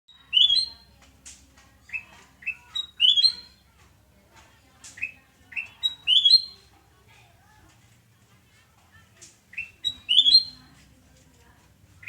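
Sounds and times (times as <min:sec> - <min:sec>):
bulbul singing: 0:05.5 - 0:06.6, 0:09.5 - 0:10.7.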